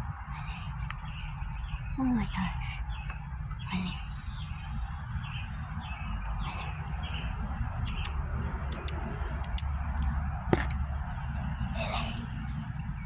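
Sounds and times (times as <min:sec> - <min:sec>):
small birds chirping: 0:00.0 - 0:13.0
sharp clicks: 0:07.0 - 0:10.8.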